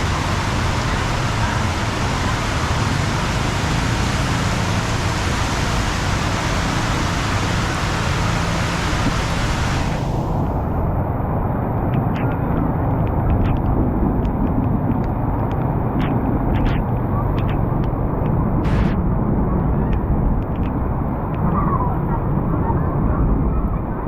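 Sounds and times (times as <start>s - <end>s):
long hiss: 0.0s - 10.8s
traffic rumble in wet street: 0.0s - 24.0s
sharp taps: 11.8s - 19.0s.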